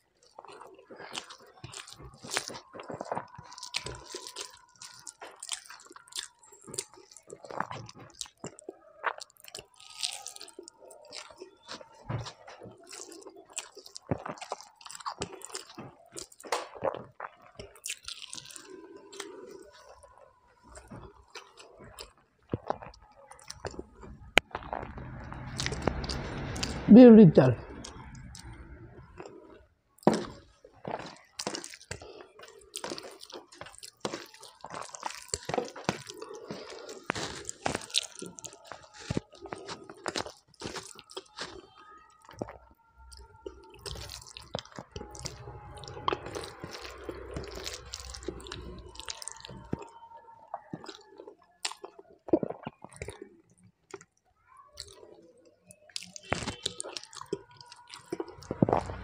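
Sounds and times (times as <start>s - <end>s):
person chewing with wet mouth sounds: 0.0s - 26.9s, 27.7s - 59.0s.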